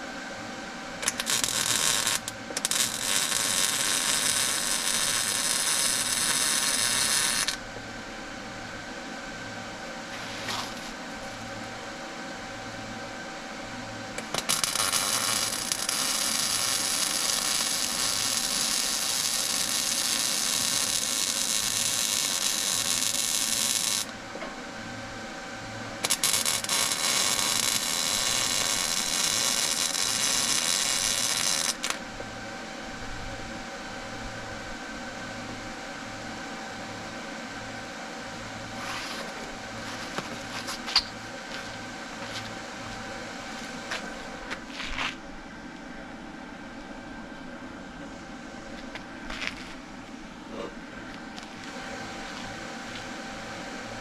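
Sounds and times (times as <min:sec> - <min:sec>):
low machine hum: 0:00.0 - 0:54.0
welding arc crackling and hissing: 0:01.0 - 0:07.7, 0:10.1 - 0:11.5, 0:14.2 - 0:24.3, 0:25.9 - 0:32.2, 0:38.6 - 0:45.1.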